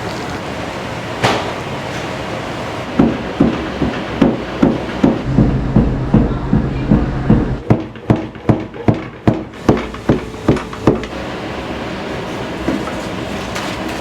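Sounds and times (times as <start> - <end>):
steady kitchen hiss: 0.0 - 5.3, 9.6 - 14.0
sharp evenly spaced knocks: 3.0 - 11.1.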